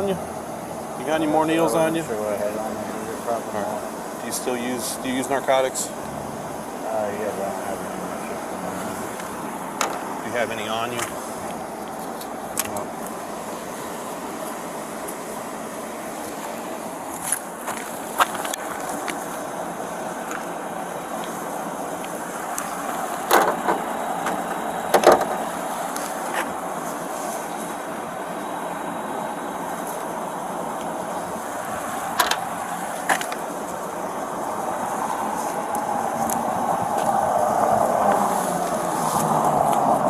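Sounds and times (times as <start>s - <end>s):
outdoor background noise: 0.0s - 40.0s
sharp knocks: 23.3s - 25.4s.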